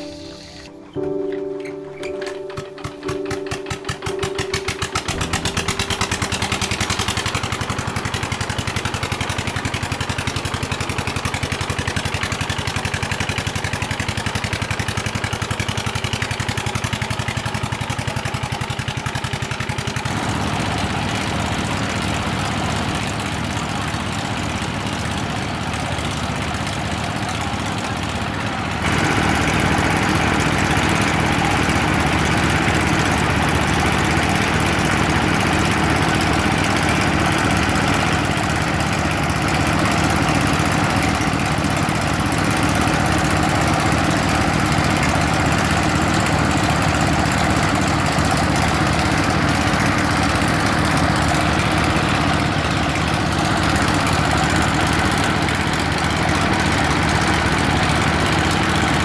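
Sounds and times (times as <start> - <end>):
drilling rig motor humming: 0.0 - 0.8, 20.1 - 59.0.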